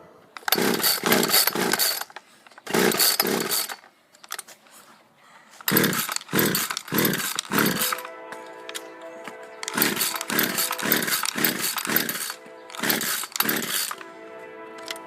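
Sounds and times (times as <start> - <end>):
chainsaw being pull-started: 0.4 - 4.5, 5.6 - 8.1, 9.6 - 14.0, 14.8 - 15.0.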